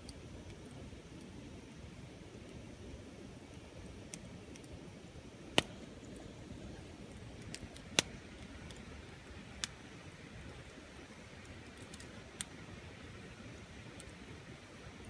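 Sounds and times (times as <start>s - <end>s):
bonfire crackling: 0.0s - 15.0s
low steady noise: 0.0s - 15.0s
sharp pops of fire: 5.4s - 15.0s.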